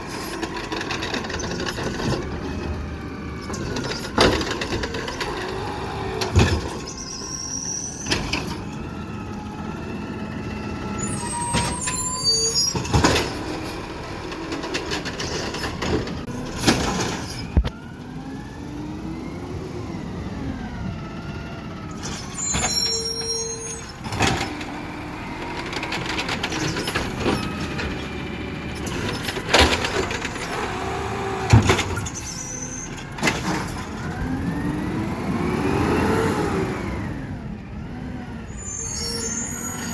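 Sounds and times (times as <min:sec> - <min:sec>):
garbage truck engine revving: 0:00.0 - 0:39.9
short high squeals: 0:06.8 - 0:08.2, 0:11.0 - 0:13.4, 0:22.0 - 0:24.0, 0:32.0 - 0:33.0, 0:38.5 - 0:39.9.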